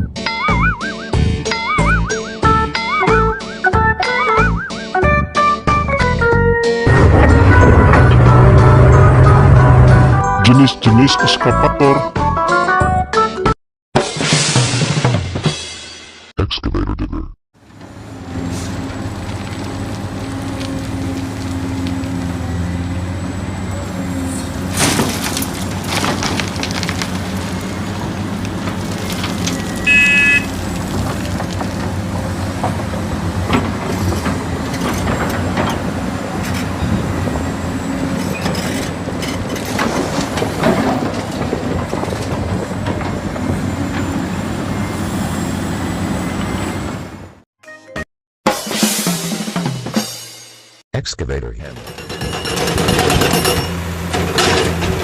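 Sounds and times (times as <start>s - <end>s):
diesel engine droning: 0.0s - 10.6s, 17.6s - 47.4s.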